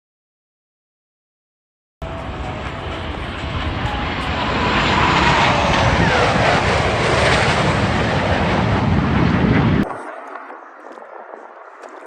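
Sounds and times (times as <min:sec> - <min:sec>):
falling engine whine: 0:02.0 - 0:09.8
jet aircraft passing overhead: 0:02.0 - 0:11.3.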